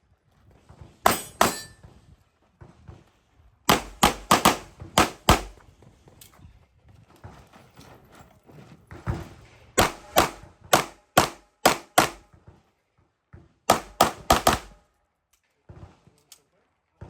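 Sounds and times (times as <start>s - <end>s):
handling and movement noise: 0.0s - 9.8s
pistol shots: 3.7s - 5.6s, 9.8s - 12.3s, 13.7s - 14.8s.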